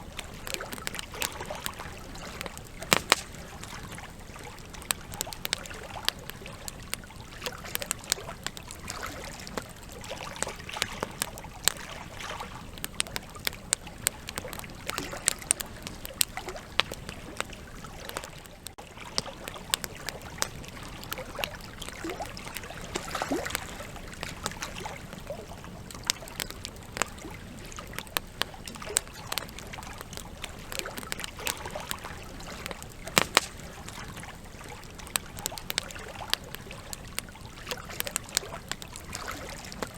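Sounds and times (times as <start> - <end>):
campfire crackling and popping: 0.0 - 39.9
low rush of flame: 32.6 - 38.9.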